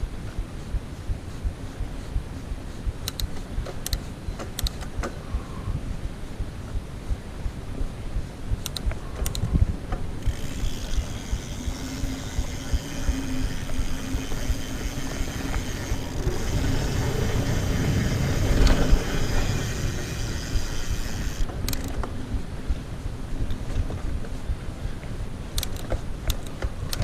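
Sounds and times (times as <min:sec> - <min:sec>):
wind on microphone: 0:00.0 - 0:27.0
bike tyres rumbling over ground: 0:10.0 - 0:21.4
bicycle freehub ratcheting buzz: 0:10.2 - 0:21.5.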